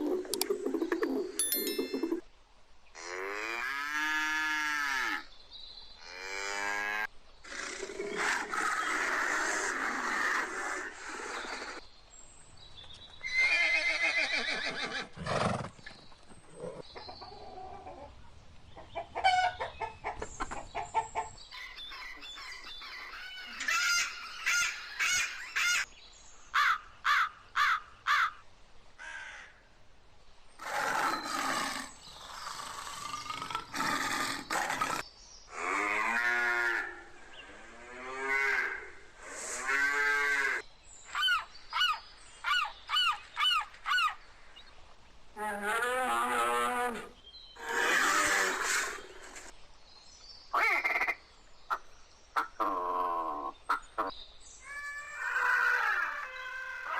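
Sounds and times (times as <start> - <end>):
animal calls: 52.4 - 56.9.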